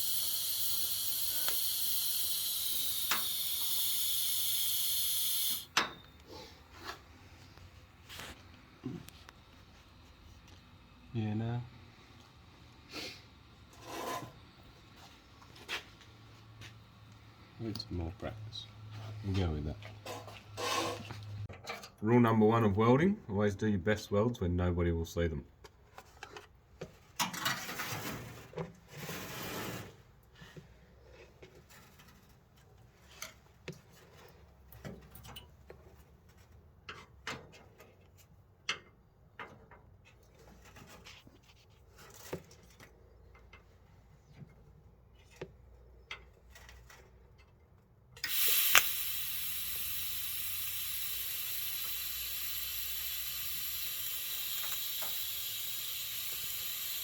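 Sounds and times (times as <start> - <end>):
metal parts clicking and knocking: 0.0 - 4.0
welding arc hissing: 0.0 - 5.7, 48.2 - 57.0.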